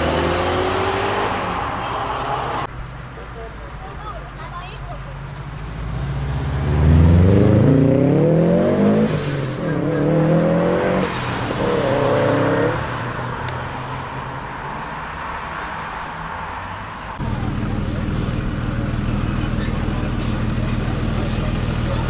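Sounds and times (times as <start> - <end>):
car accelerating hard: 0.0 - 2.7, 5.2 - 22.0.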